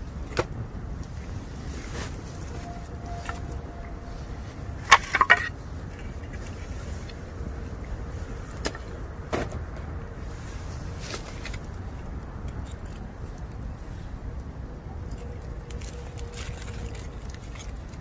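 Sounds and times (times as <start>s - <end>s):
faint thin whistle: 2.4s - 4.3s.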